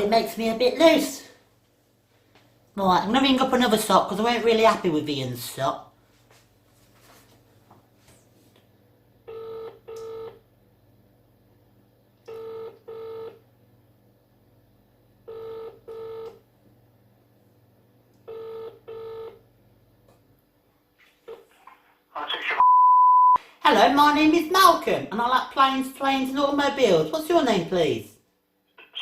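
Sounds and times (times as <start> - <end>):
telephone ringing tone: 9.3 - 10.4, 12.3 - 13.4, 15.3 - 16.4, 18.3 - 19.4.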